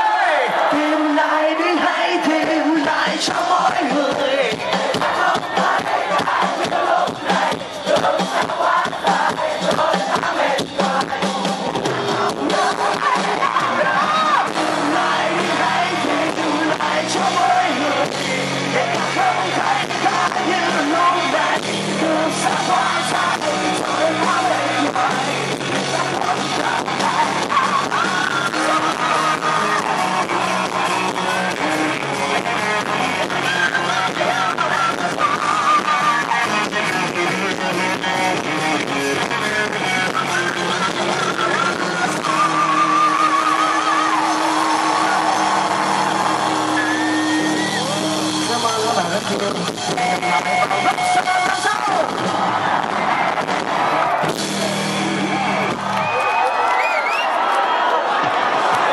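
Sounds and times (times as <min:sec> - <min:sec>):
sung and yelled vocals: 0:00.0 - 0:58.9
rock band playing live: 0:00.1 - 0:56.8
electric guitars: 0:00.6 - 0:58.9.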